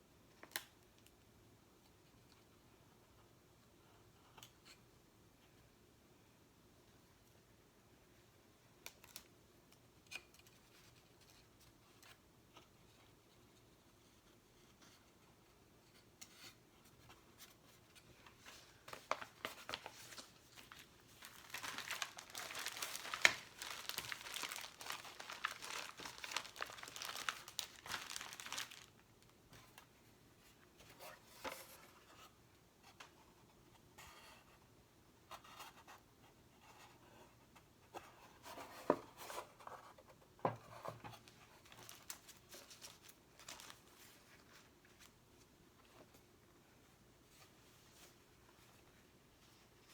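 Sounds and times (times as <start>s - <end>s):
stickers crinkling and peeling: 18.8s - 29.3s, 41.6s - 43.9s.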